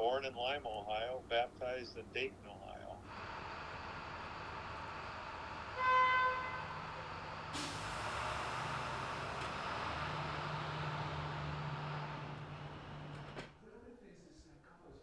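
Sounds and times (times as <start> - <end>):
vehicle rumbling: 0.0 - 13.6
horn toot: 5.8 - 6.8.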